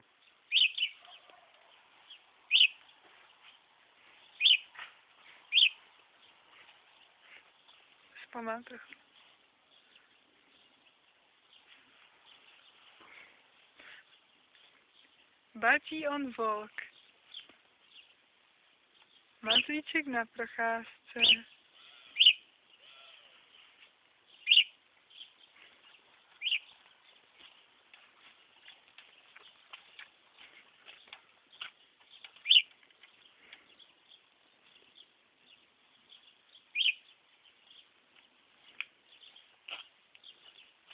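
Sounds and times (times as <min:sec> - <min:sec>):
budgerigar chirping: 0:00.5 - 0:01.4, 0:02.5 - 0:02.8, 0:04.4 - 0:04.7, 0:05.5 - 0:05.8, 0:21.2 - 0:23.4, 0:24.4 - 0:25.3, 0:26.4 - 0:26.8, 0:32.4 - 0:32.7, 0:36.6 - 0:37.1.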